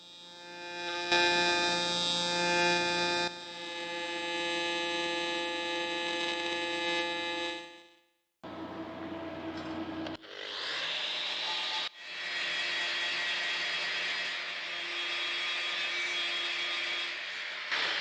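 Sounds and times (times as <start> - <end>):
band saw cutting: 0.0 - 7.7.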